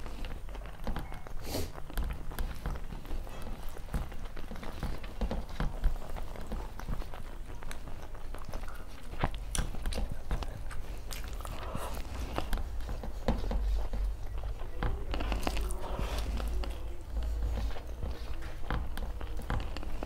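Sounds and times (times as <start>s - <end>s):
person chewing and biting food: 0.0s - 20.0s
steady low hum: 0.0s - 20.0s
wet mouth clicks: 8.0s - 12.6s.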